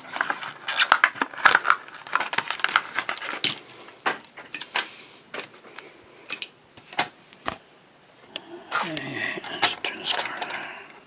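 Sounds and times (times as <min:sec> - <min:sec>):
plastic blister pack crackling: 0:00.0 - 0:07.6.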